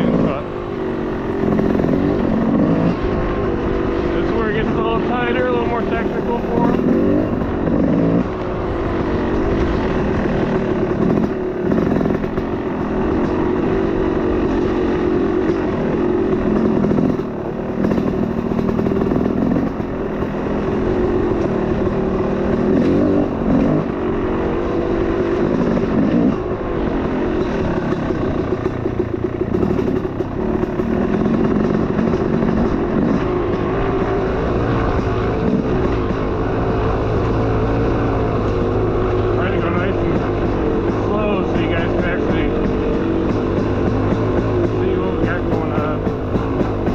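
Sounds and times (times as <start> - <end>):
off-road vehicle engine revving: 0.0 - 46.9.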